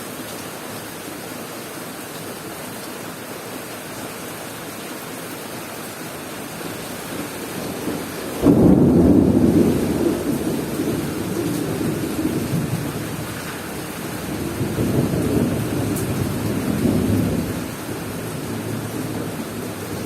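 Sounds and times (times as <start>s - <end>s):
steady rain falling: 0.0s - 20.0s
thunder rumbling: 7.6s - 20.0s.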